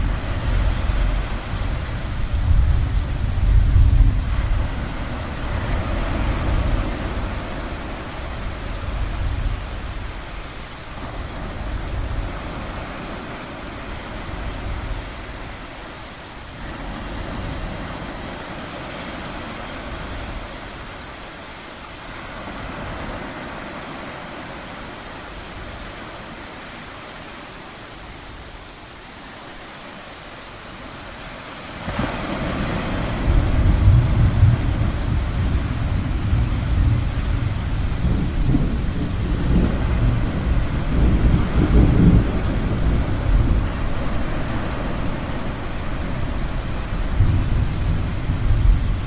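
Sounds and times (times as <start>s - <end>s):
low rumble of thunder: 0.0s - 13.1s, 32.5s - 49.0s
ocean surf washing in: 0.0s - 49.0s.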